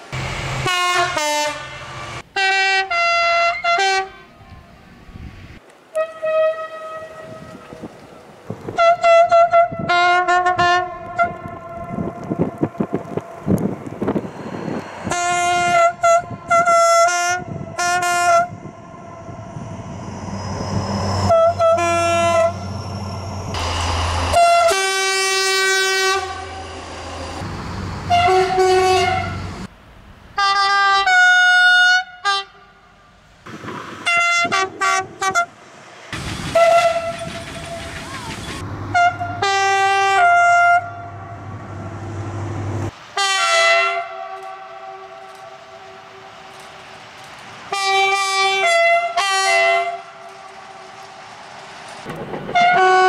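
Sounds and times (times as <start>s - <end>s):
train low rumble: 0.0s - 31.2s, 32.1s - 53.0s
two-tone train horn blasts: 0.6s - 4.4s, 5.9s - 7.8s, 8.8s - 13.6s, 15.0s - 18.7s, 21.2s - 22.7s, 23.6s - 27.4s, 28.1s - 29.5s, 30.4s - 32.8s, 34.0s - 35.5s, 36.6s - 37.2s, 38.9s - 41.6s, 43.2s - 46.4s, 47.7s - 50.9s, 52.5s - 53.0s.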